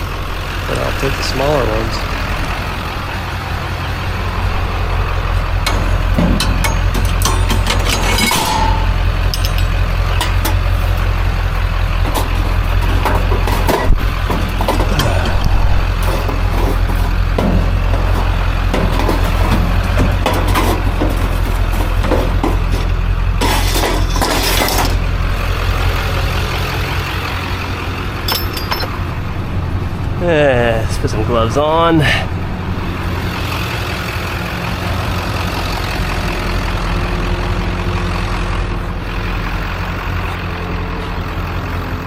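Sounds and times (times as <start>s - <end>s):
vehicle engine idling: 0.0s - 42.0s
scrap steel clanking: 5.6s - 11.0s, 11.9s - 25.1s, 28.2s - 29.1s.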